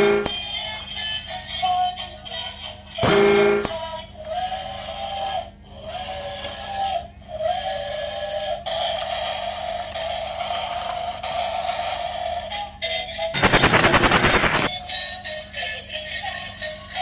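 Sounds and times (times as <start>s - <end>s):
rapid rattling pulses: 13.4s - 14.7s.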